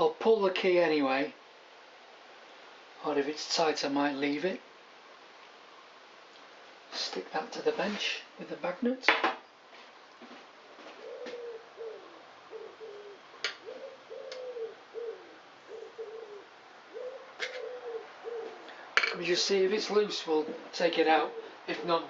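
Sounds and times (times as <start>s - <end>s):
pigeon cooing: 10.8s - 19.1s, 20.4s - 22.0s.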